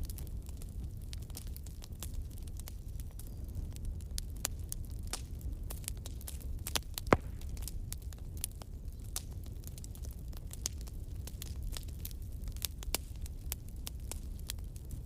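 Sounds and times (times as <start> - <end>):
burning wood popping and snapping: 0.0 - 15.0
low rumble of flames: 0.0 - 15.0.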